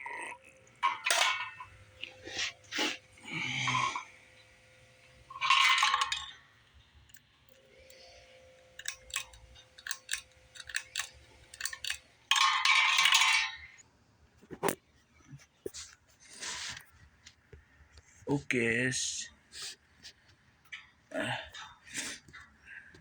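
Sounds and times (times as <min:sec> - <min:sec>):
light clicks and clinks: 0:07.1 - 0:13.8.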